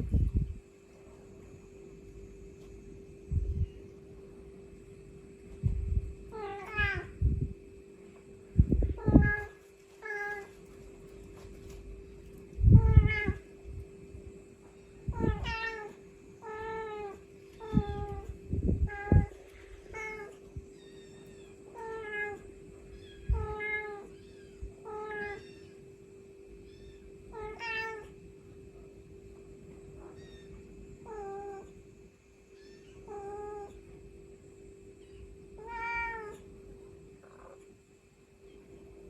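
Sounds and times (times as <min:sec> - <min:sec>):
steady hum: 0:00.0 - 0:39.0
cat meowing: 0:06.3 - 0:07.2, 0:08.9 - 0:10.5, 0:12.8 - 0:13.4, 0:15.1 - 0:25.7, 0:26.7 - 0:28.2, 0:35.6 - 0:36.4.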